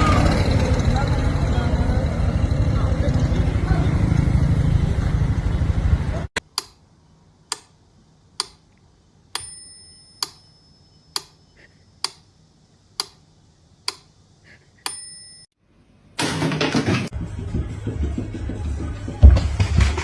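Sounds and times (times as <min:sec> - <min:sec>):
sharp ticks: 0:08.4 - 0:08.7, 0:11.1 - 0:11.4, 0:12.0 - 0:12.3, 0:13.0 - 0:13.2
bell-like ring: 0:09.4 - 0:11.1, 0:14.9 - 0:15.6.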